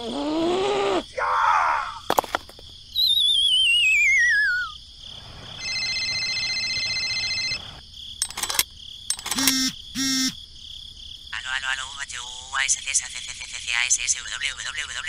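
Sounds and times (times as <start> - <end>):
high warbling whistle sliding down: 3.0 - 4.8
electronic phone tone pulsing: 5.6 - 7.8, 9.2 - 10.4
sharp clicks: 8.2 - 10.4.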